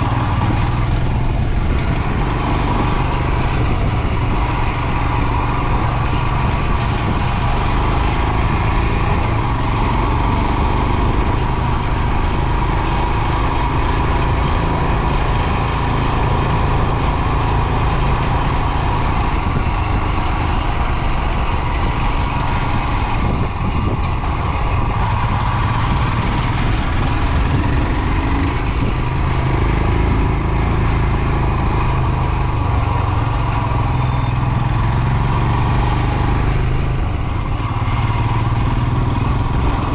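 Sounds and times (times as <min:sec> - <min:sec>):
wind on microphone: 0:00.0 - 0:12.8, 0:13.6 - 0:33.0
motorcycle engine running: 0:00.0 - 0:39.9.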